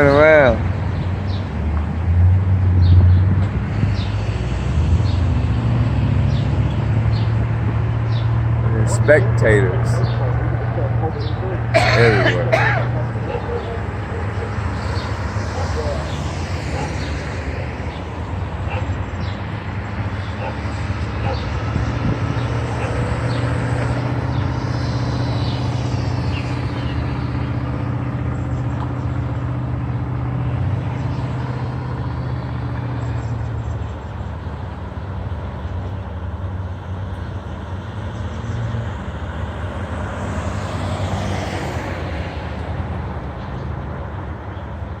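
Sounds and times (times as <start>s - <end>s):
street traffic noise: 0.0s - 45.0s
vehicle engine idling: 8.0s - 21.5s.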